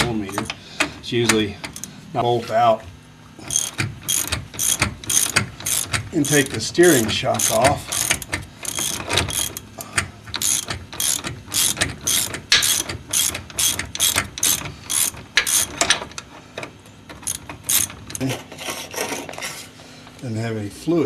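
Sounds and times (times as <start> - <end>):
ratchet wrench clicking: 1.7 - 1.9, 3.5 - 16.2, 17.1 - 18.2.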